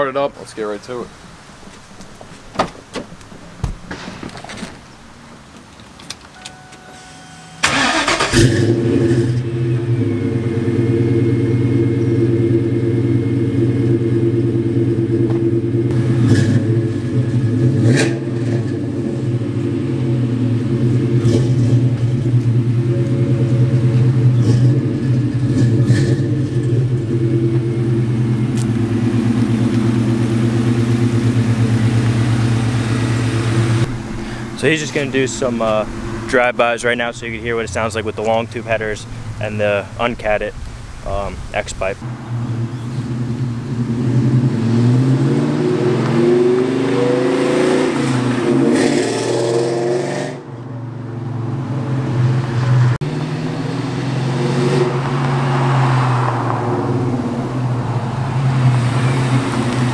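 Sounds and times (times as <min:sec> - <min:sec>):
car engine starting and idling: 0:00.2 - 0:59.9.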